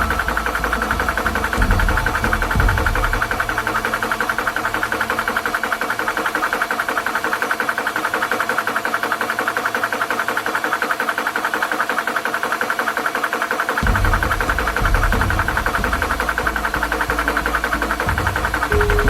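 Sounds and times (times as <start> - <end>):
low rumble: 0.0 - 8.3, 13.8 - 19.0.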